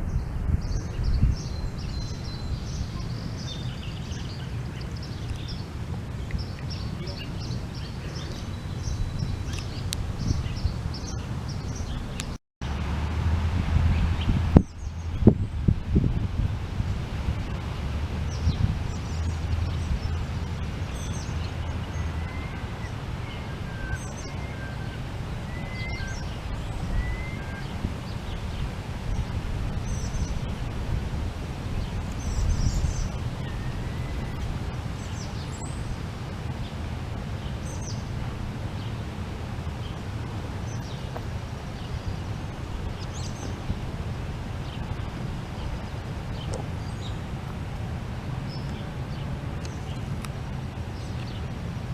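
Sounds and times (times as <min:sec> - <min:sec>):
birds chirping: 0:00.0 - 0:12.4, 0:18.2 - 0:30.7, 0:31.8 - 0:38.1, 0:39.7 - 0:43.7, 0:44.5 - 0:47.3
wind rumble on microphone: 0:00.0 - 0:51.9.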